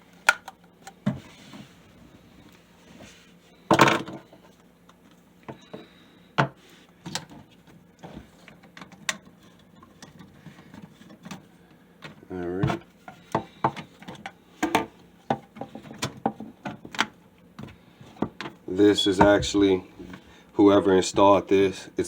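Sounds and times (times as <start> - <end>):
pipe parts clicking and knocking: 8.5 - 20.2.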